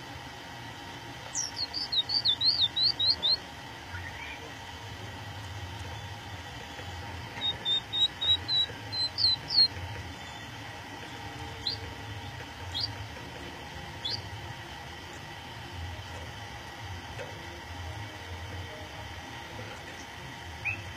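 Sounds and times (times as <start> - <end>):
faint low hum: 0.0 - 20.9
budgerigar chirping: 1.3 - 3.4, 7.3 - 9.7, 11.6 - 11.8, 12.7 - 13.0, 14.0 - 14.2.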